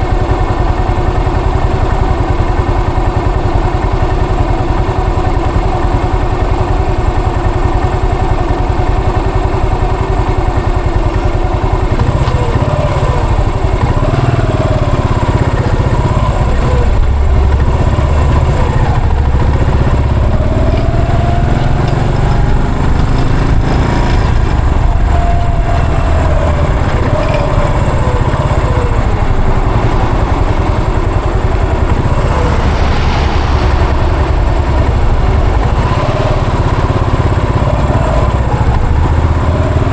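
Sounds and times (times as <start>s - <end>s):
motorcycle engine thumping: 10.0s - 39.9s.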